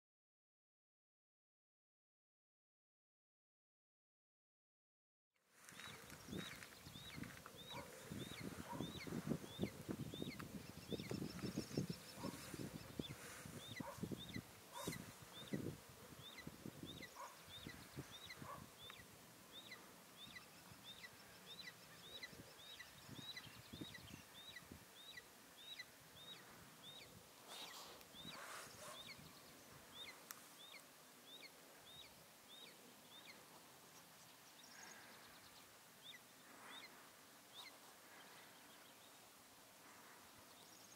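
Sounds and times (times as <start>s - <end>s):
young bird of prey chirping: 5.8s - 33.4s.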